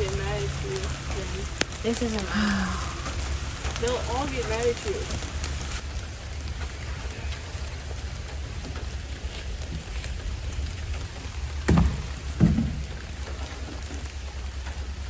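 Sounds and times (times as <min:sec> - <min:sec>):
outdoor hiss: 0:00.0 - 0:15.0
dull thumps: 0:11.6 - 0:13.2.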